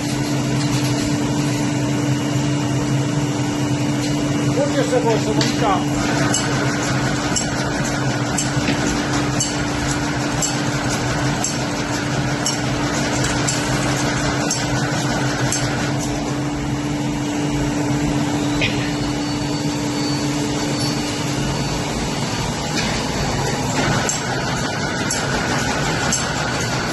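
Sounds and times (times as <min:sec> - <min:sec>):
high steady machine whine: 0:00.0 - 0:26.9
machine humming: 0:00.0 - 0:26.9
regular machine clicks: 0:06.1 - 0:16.1, 0:22.7 - 0:26.9.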